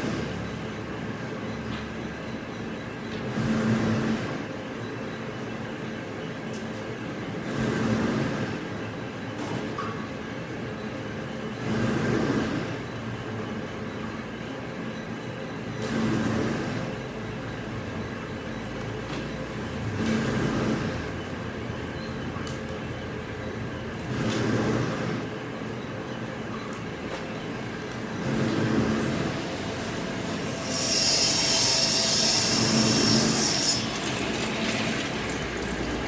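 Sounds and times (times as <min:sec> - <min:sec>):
machinery humming: 0:15.6 - 0:36.0
swell of mechanical noise: 0:26.2 - 0:36.0.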